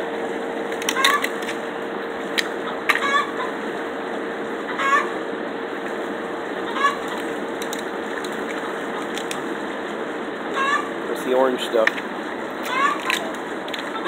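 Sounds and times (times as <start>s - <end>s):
bird honking: 2.6s - 3.5s, 4.7s - 5.2s, 6.6s - 7.1s, 10.5s - 10.9s, 12.6s - 13.2s
crab shells cracking: 7.1s - 9.4s, 12.6s - 13.9s.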